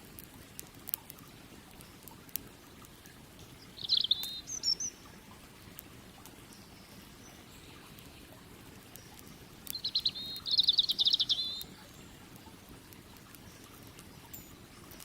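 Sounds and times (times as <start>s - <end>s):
campfire crackles: 0.0s - 15.0s
rushing water: 0.0s - 15.0s
songbird trilling: 3.7s - 5.0s, 9.7s - 11.8s.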